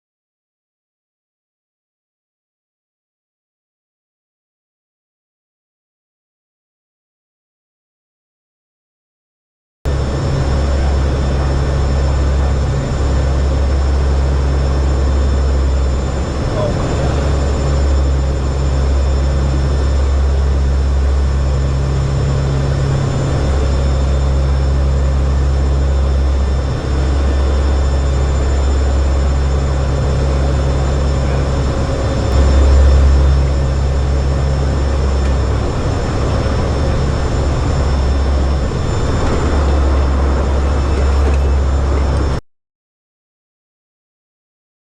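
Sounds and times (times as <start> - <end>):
aircraft engines droning: 9.9 - 42.4.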